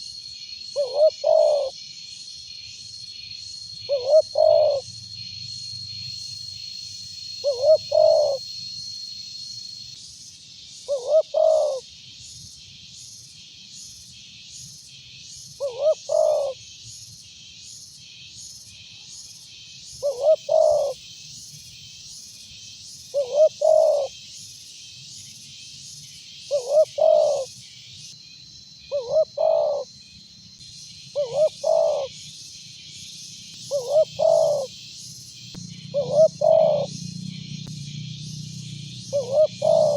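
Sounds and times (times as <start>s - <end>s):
dove cooing: 0.8s - 1.7s, 3.9s - 4.9s, 7.4s - 8.5s, 10.9s - 11.8s, 15.6s - 16.6s, 20.0s - 21.0s, 23.2s - 24.1s, 26.5s - 27.5s, 28.9s - 29.9s, 31.2s - 32.2s, 33.6s - 34.8s, 35.6s - 37.4s, 38.2s - 39.9s
high-pitched chirping pulse: 33.6s - 34.8s, 35.5s - 39.9s.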